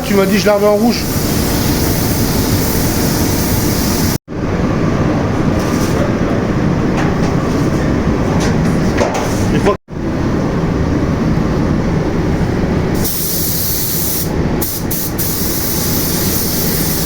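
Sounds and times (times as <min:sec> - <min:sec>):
steady machine noise: 0:00.0 - 0:08.3.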